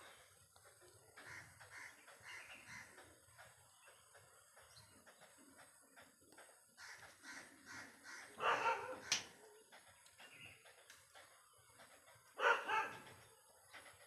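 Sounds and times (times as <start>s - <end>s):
dog barking: 8.4s - 9.7s, 12.4s - 13.1s.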